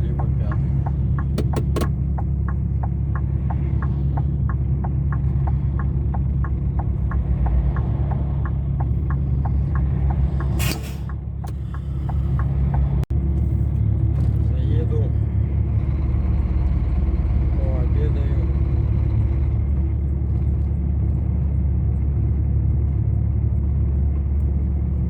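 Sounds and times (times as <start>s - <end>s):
fast steady ticking: 0.0s - 13.0s
truck engine running: 0.0s - 25.0s
sharp clicks: 0.2s - 12.9s.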